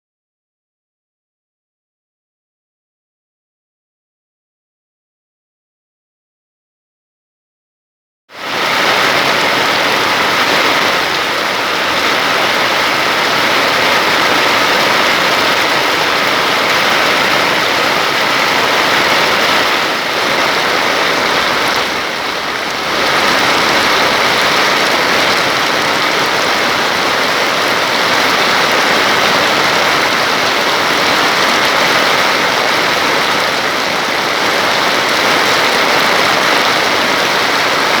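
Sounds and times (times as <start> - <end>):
heavy rain: 8.4 - 38.0
rushing floodwater: 8.4 - 38.0.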